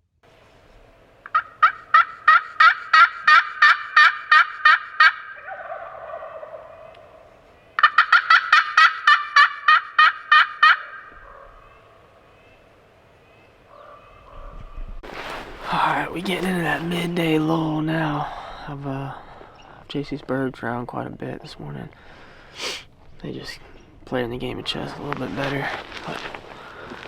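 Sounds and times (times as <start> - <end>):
turkey yelping: 1.2 - 12.1.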